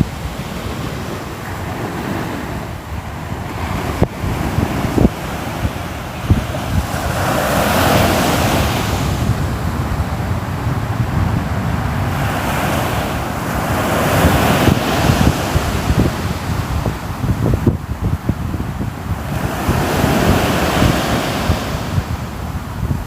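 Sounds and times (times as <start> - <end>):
low thumps of surf: 0.0 - 23.0
ocean waves breaking on shore: 0.0 - 23.0
wind on microphone: 0.0 - 23.0.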